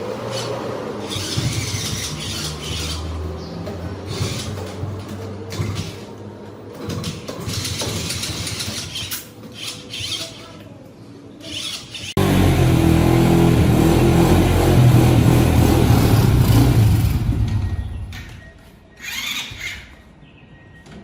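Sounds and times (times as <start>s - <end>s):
motorcycle engine running: 12.2s - 18.1s.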